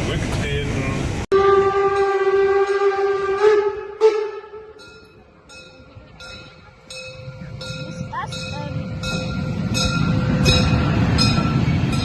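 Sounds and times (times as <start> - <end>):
railcar horn: 1.3 - 4.8.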